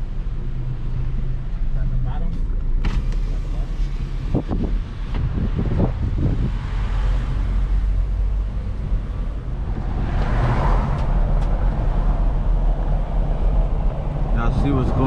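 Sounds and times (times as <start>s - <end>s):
car engine and tyres rumbling: 0.0s - 15.0s
rushing wind noise: 4.1s - 15.0s.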